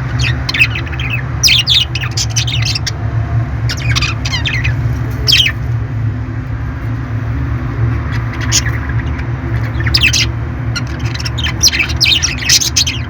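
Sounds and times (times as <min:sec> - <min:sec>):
parrot squawking: 0:00.0 - 0:03.0, 0:03.7 - 0:05.6, 0:07.7 - 0:13.0
steady low hum: 0:00.0 - 0:13.0.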